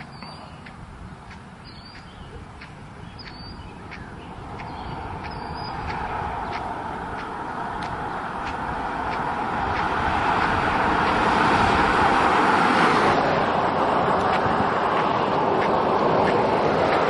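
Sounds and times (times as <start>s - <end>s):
approaching car road noise: 0.0s - 17.0s
bird short high chirps: 1.6s - 2.3s, 3.0s - 5.8s.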